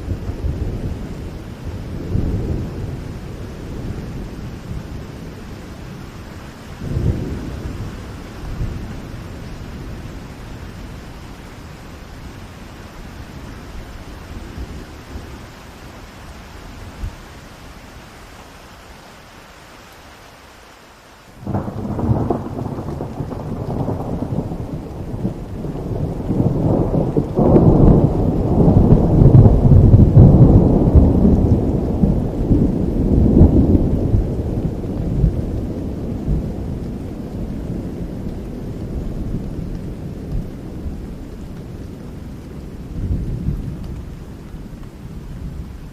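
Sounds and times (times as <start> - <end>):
thunder clap and rumble: 0.0 - 11.1, 21.4 - 45.9
rain hissing: 0.0 - 45.9.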